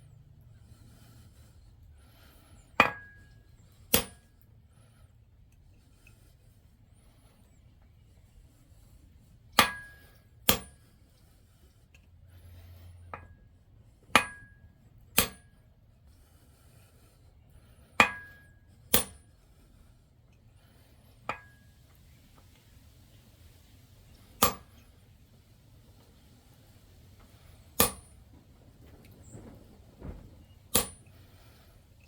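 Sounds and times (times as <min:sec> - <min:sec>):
hammer striking metal: 0:09.6 - 0:10.7, 0:14.2 - 0:14.6, 0:18.0 - 0:19.2, 0:24.4 - 0:24.8, 0:27.8 - 0:28.2, 0:30.7 - 0:31.0.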